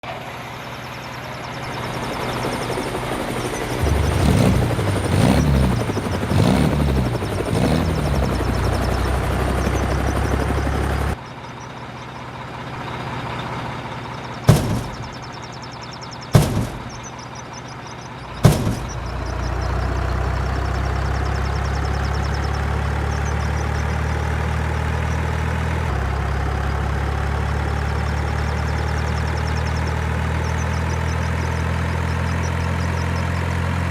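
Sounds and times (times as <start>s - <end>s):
truck engine running: 1.0s - 15.5s, 16.3s - 17.2s, 18.3s - 33.5s
sharp bangs: 3.8s - 9.0s, 14.5s - 15.4s, 16.4s - 17.2s, 18.3s - 19.7s.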